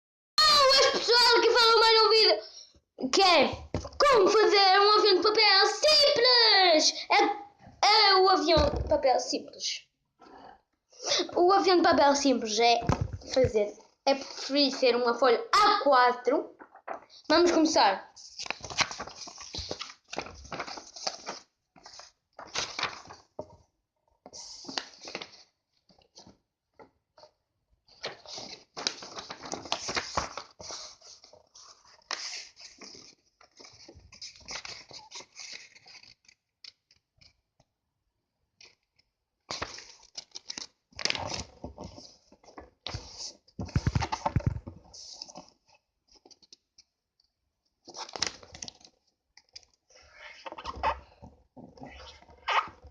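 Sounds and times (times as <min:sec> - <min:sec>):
paper rustling and crinkling: 0:18.2 - 0:23.6, 0:24.3 - 0:26.4, 0:27.9 - 0:37.4, 0:38.6 - 0:46.9, 0:47.8 - 0:49.8.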